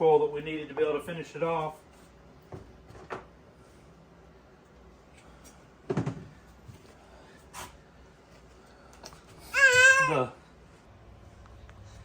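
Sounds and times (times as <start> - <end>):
objects knocking on a workbench: 2.5 - 3.3, 5.9 - 6.4.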